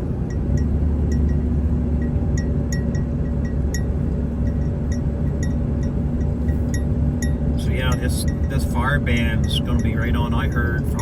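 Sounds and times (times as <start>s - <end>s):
road rumble inside vehicle: 0.0s - 11.0s.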